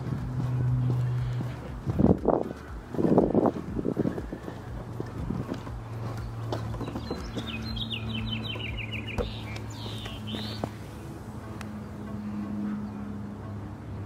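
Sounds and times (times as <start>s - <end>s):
steady low hum: 0.0s - 14.0s
small songbird singing: 6.0s - 10.8s.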